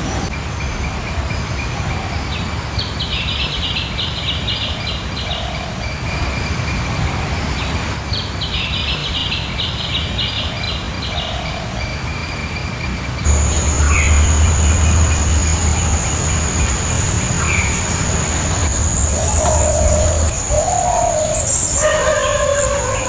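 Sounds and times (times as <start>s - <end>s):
low rumbling noise: 13.2s - 21.8s
high chirping call: 13.2s - 23.0s.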